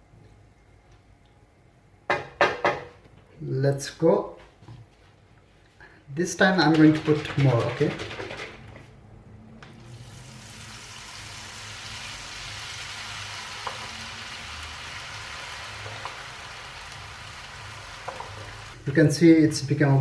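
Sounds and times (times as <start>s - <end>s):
batter sizzling in hot oil: 9.8s - 18.8s.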